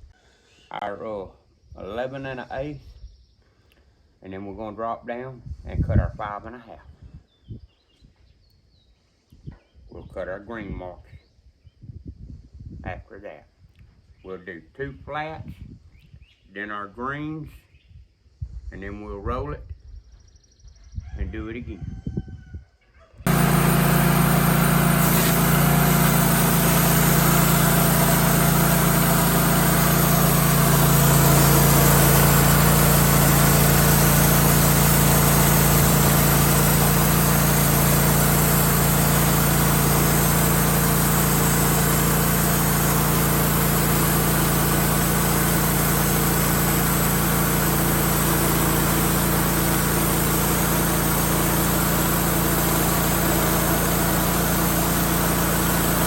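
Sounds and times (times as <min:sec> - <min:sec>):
engine running steadily: 0:23.3 - 0:56.0.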